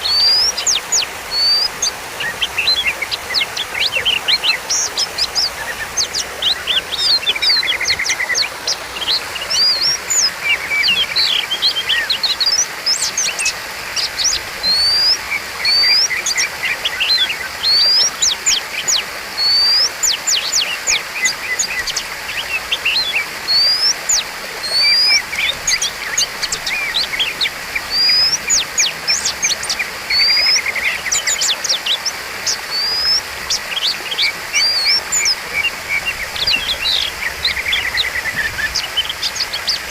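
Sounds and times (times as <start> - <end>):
songbird singing whistled notes: 0.0 - 39.9.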